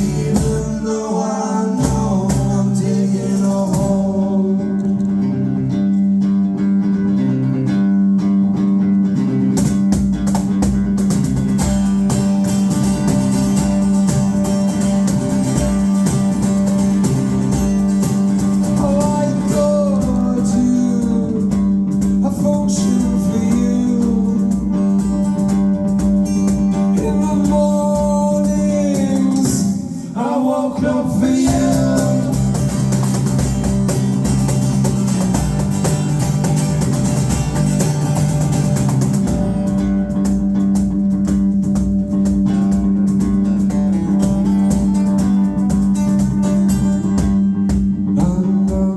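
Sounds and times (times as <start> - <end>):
person singing: 0.0 - 5.3, 18.7 - 24.8, 26.9 - 32.9, 48.1 - 48.9
bass guitar: 0.0 - 48.9
strummed acoustic guitar: 0.0 - 48.9.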